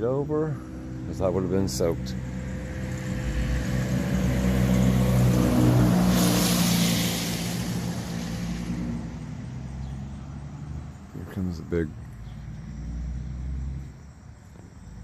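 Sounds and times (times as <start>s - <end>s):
vehicle engine hum passing: 0.0s - 15.0s
rushing hiss: 5.5s - 9.4s.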